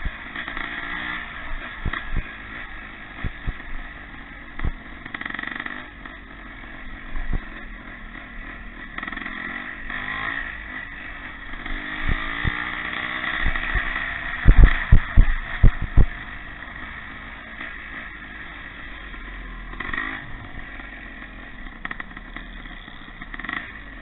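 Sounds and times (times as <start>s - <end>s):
motorcycle engines revving: 0.0s - 24.0s
low thumps: 3.2s - 3.8s, 4.6s - 4.9s, 11.5s - 12.6s, 13.4s - 16.2s.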